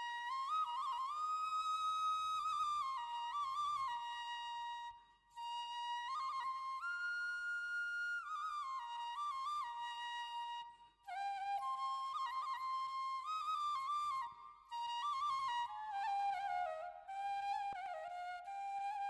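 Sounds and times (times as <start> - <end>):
solo flute melody: 0.0 - 19.0.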